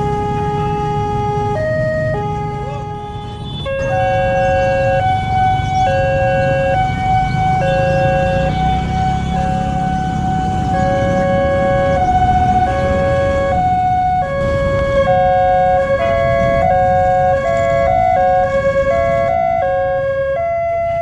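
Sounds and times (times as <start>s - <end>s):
two-tone crossing alarm: 0.0s - 21.0s
second crossing alarm: 1.5s - 14.2s.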